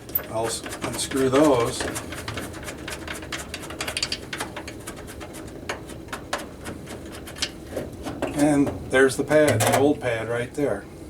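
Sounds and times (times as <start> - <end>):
light clicks taps and rattles: 0.0 - 8.8.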